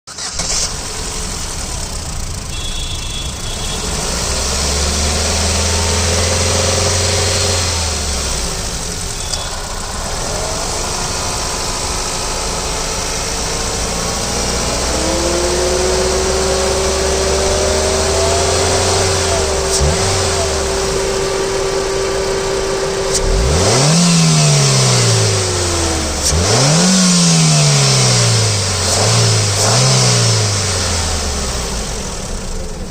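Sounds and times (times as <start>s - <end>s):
car engine revving: 0.1s - 32.9s
car engine running: 0.1s - 32.9s
steady whine: 5.2s - 29.1s.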